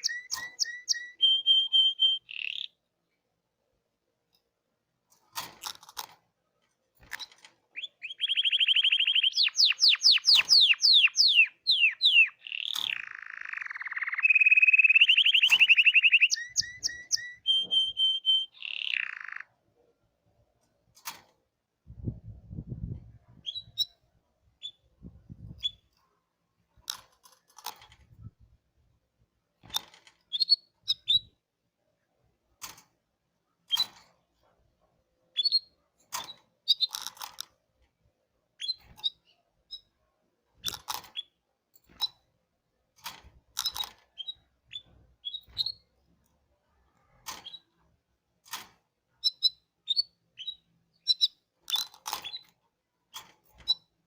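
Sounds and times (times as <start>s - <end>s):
canary chirping: 0.0s - 2.9s, 7.7s - 19.6s, 30.3s - 31.4s, 35.3s - 35.8s, 36.6s - 37.0s, 38.6s - 40.0s, 43.6s - 45.9s, 49.2s - 52.6s
sharp clicks: 8.2s - 17.4s.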